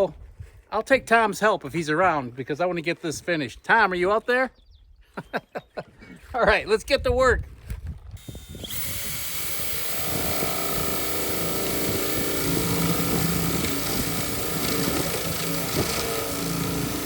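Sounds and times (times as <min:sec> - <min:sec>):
motor humming: 0:08.2 - 0:17.0.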